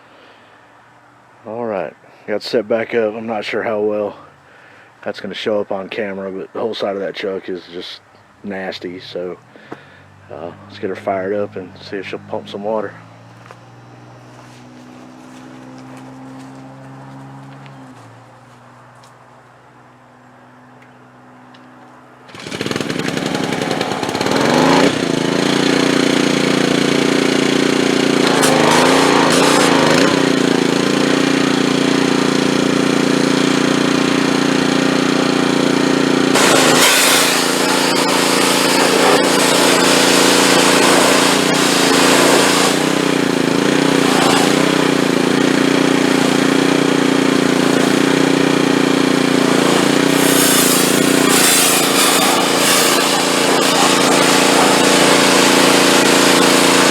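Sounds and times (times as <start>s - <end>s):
pressure washer engine running: 22.3s - 56.9s.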